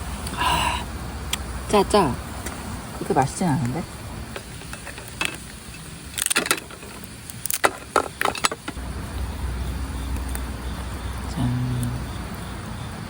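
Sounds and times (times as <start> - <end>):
crab shell clicks and clatters: 4.4 - 8.8
low steady hum: 8.2 - 13.0.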